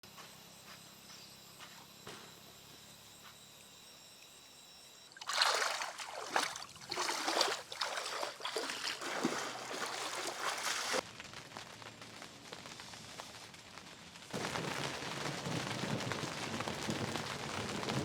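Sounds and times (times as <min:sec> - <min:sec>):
faint high insect-like tones: 0:00.1 - 0:05.2
water splashing and trickling: 0:05.1 - 0:11.0.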